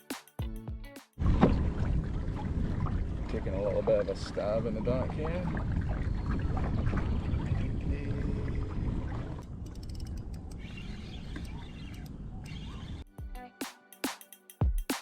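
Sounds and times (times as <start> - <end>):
wind buffeting microphone: 1.2 - 12.4.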